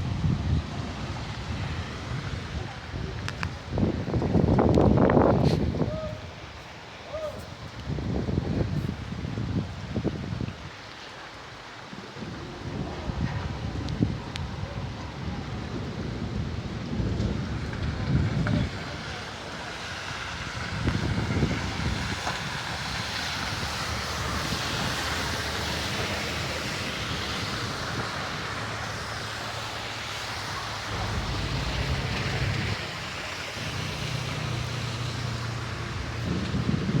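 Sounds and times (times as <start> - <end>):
heavy rain hissing: 0.0 - 37.0
low rumbling: 11.9 - 18.5, 28.4 - 37.0.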